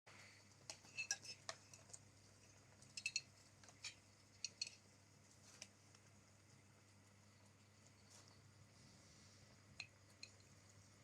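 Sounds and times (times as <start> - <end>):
kitchenware clinking: 0.7 - 2.0, 2.8 - 4.8.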